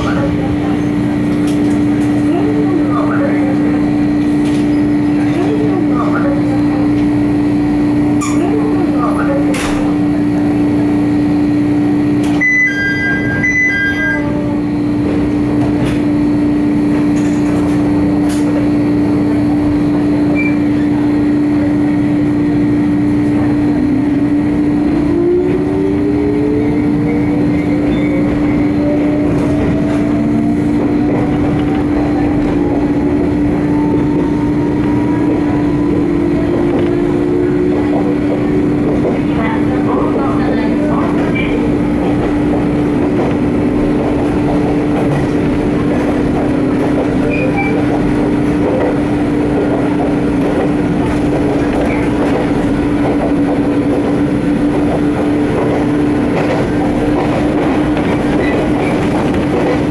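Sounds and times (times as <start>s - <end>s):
electric train humming: 0.0s - 59.9s.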